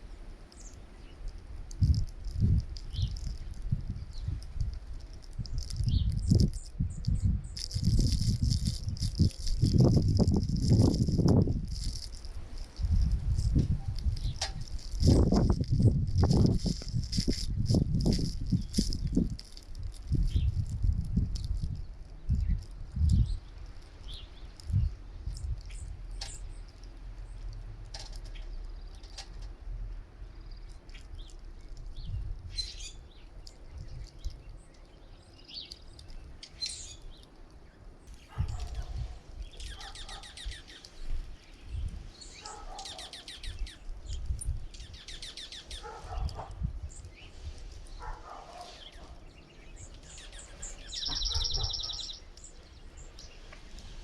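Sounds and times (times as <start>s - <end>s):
songbirds chirping: 0.0s - 54.0s
rattling bird calls: 38.1s - 40.9s, 42.2s - 46.5s, 49.8s - 53.4s.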